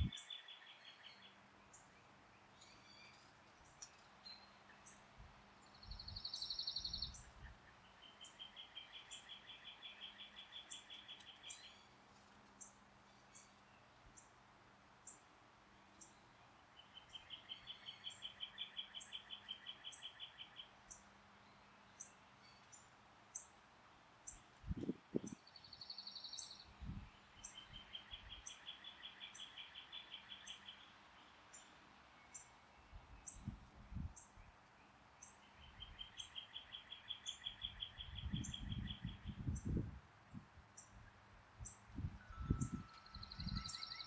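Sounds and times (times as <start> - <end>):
bird singing fast trill: 5.8 - 7.3, 25.1 - 30.8, 35.2 - 39.8, 41.6 - 44.0
wind thumps on microphone: 24.7 - 25.4.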